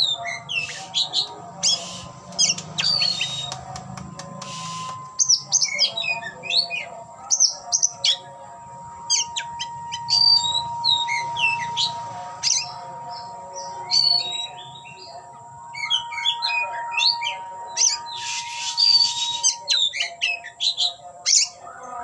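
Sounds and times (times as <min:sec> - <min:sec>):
bird singing whistled phrases: 0:00.0 - 0:03.6, 0:09.1 - 0:12.8, 0:15.8 - 0:21.6.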